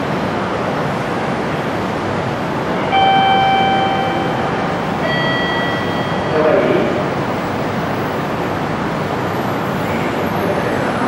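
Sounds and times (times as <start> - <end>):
train rumbling into platform: 0.0 - 11.0
loud sustained tone: 2.8 - 8.0.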